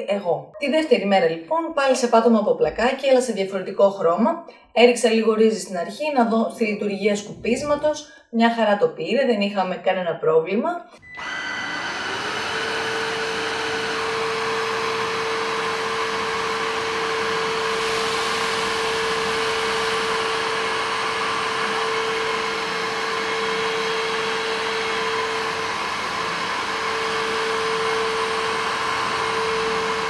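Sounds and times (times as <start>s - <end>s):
stick vacuum running: 11.0s - 30.0s.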